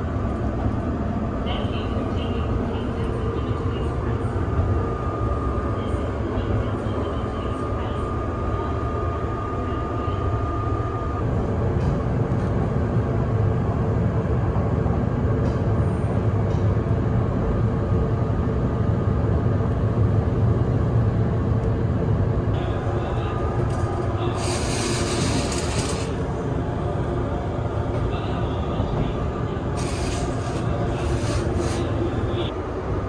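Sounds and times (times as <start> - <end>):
train wheels rumbling: 28.9 - 32.5.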